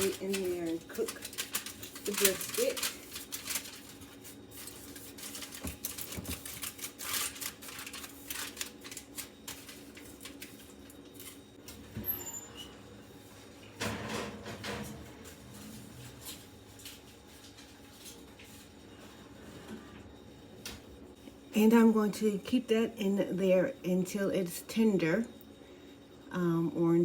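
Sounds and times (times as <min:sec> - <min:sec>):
aluminium foil crinkling: 0:00.0 - 0:11.4.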